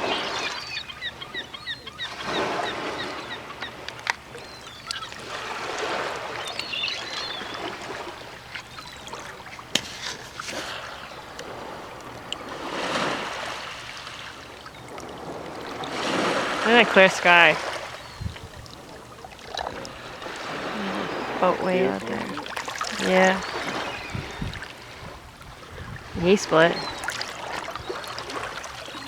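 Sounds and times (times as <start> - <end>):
small waves on rocky shore: 0.0 - 29.0
bird chirps: 4.4 - 11.5.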